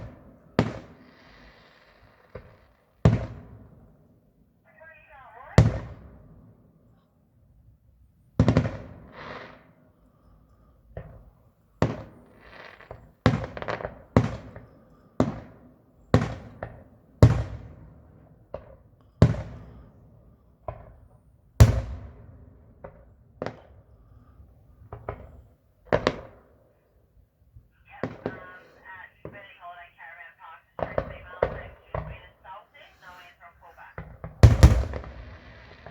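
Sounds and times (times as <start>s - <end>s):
fireworks bangs echoing: 0.0s - 3.9s, 8.4s - 9.7s, 11.0s - 15.6s, 21.6s - 23.7s, 24.8s - 26.5s, 27.8s - 35.9s.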